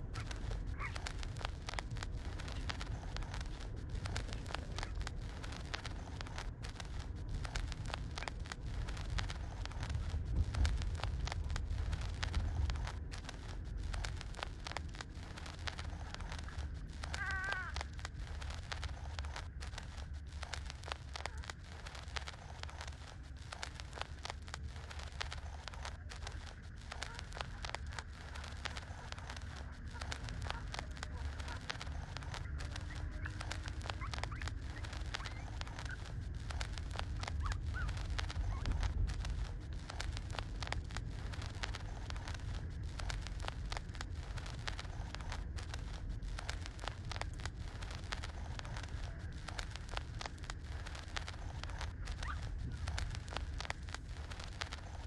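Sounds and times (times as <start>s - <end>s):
wind rumble on microphone: 0.0s - 55.0s
puppies nursing smacking: 24.9s - 40.5s.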